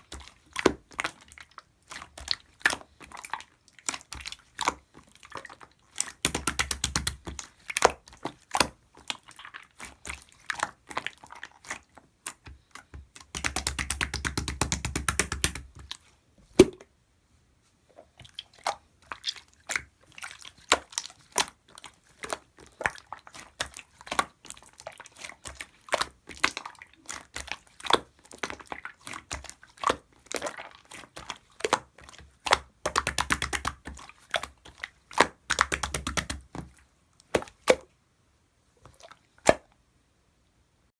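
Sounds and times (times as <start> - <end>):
slime clicking and popping: 6.1 - 8.0, 13.1 - 15.9, 29.2 - 34.5, 35.1 - 36.6.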